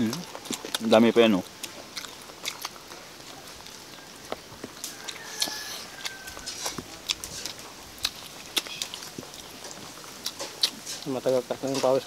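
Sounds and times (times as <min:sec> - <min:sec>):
people chewing: 0:00.0 - 0:12.0
small crunches: 0:00.0 - 0:12.0
lip smacks: 0:01.5 - 0:11.1.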